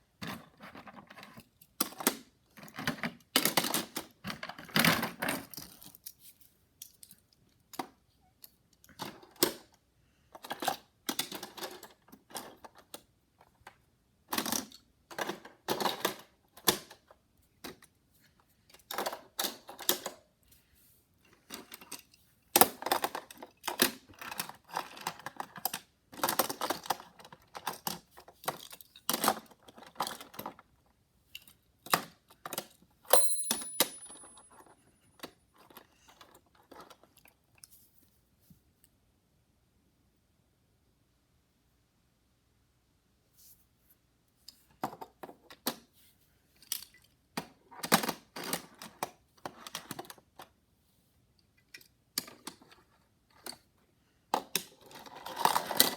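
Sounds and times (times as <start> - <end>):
toy cars clicking and clattering: 0.2 - 18.0, 18.7 - 20.3, 21.2 - 37.4, 46.6 - 50.6, 51.6 - 55.9
high-pitched metallic ring: 33.1 - 34.5.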